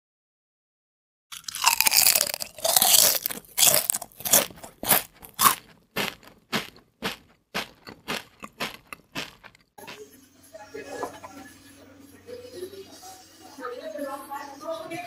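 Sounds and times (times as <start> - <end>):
person chewing crisp fish: 1.3 - 9.8.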